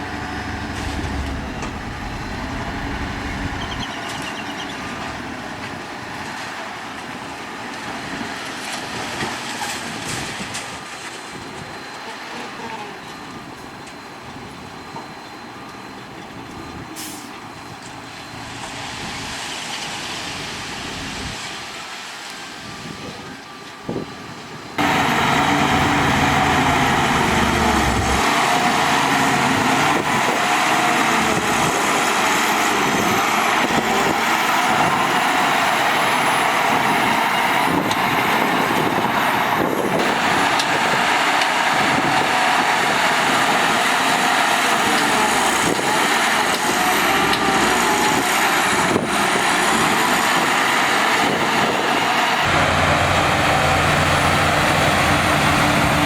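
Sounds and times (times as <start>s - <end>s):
heavy diesel machinery running: 0.0s - 8.2s, 24.7s - 56.0s.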